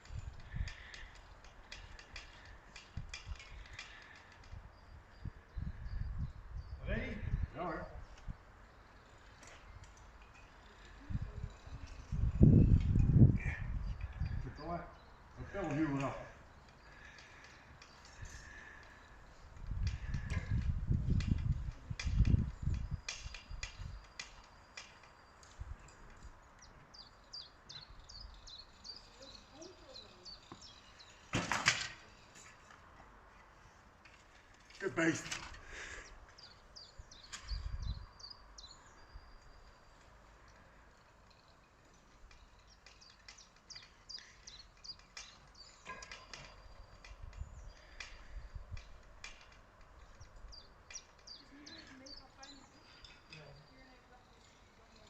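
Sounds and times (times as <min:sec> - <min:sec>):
small bird chirping: 0:21.0 - 0:31.3, 0:36.0 - 0:55.0.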